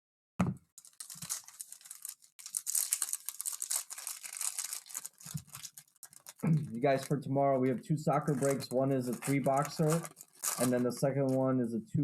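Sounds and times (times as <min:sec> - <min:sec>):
foil wrapper tearing and crumpling: 0:00.8 - 0:07.1, 0:08.2 - 0:11.4.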